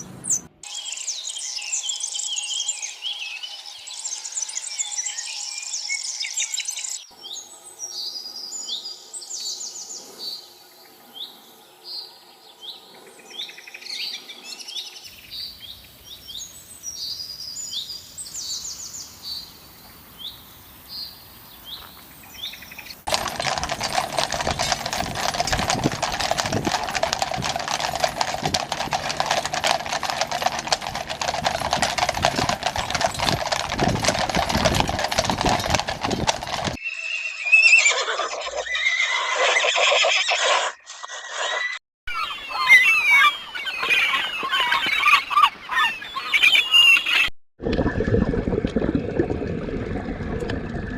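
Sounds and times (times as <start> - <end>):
horse hoofbeats: 23.1 - 36.8
horse whinnying: 23.1 - 41.8.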